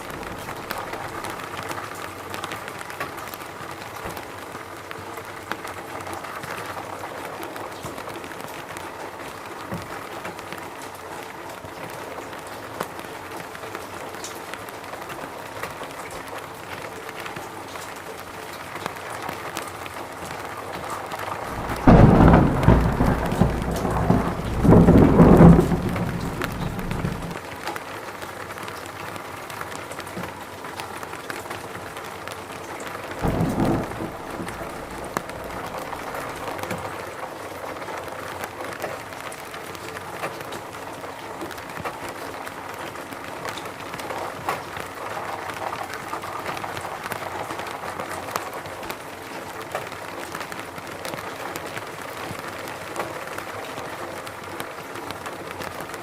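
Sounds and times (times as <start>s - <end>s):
thunder rumbling: 0.0s - 1.6s, 21.3s - 27.4s, 33.2s - 37.0s
steady rain falling: 0.0s - 56.0s.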